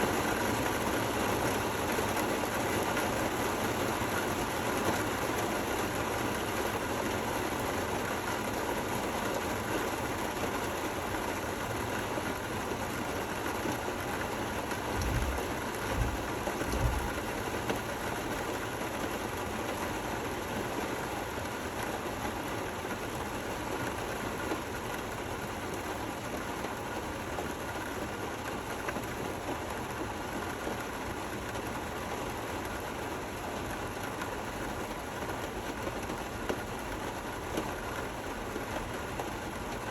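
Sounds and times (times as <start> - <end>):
steady rain hiss: 0.0 - 39.9
low thumps: 15.0 - 17.2.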